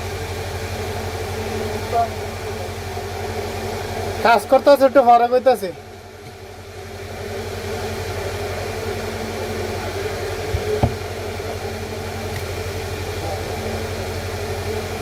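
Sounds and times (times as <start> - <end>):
low mechanical hum: 0.0 - 15.0
short knocks: 10.5 - 11.1.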